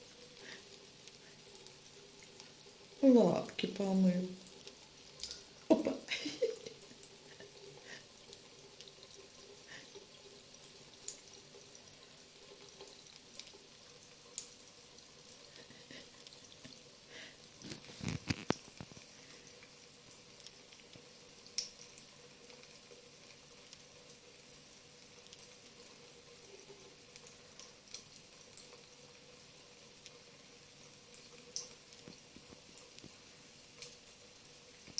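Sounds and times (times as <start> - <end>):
faint drips and clicks: 0.0 - 34.9
tap water running into sink: 0.0 - 34.9.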